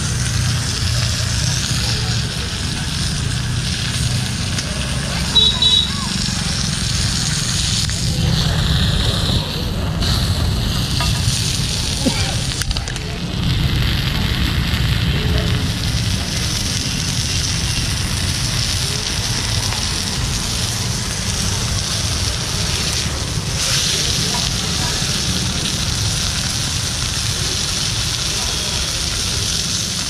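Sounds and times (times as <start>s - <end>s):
fish sizzling on a griddle: 0.0s - 30.0s
low rumble: 6.2s - 21.5s.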